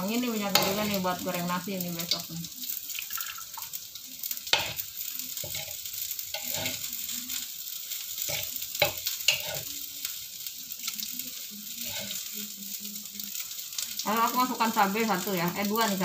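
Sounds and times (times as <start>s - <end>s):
garlic sizzling in hot oil: 0.0s - 16.0s
metal spatula clinking on pan: 8.3s - 9.6s.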